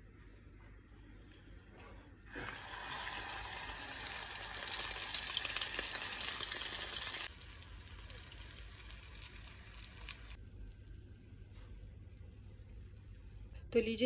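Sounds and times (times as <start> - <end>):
kebab sizzling in hot oil: 2.3 - 10.4.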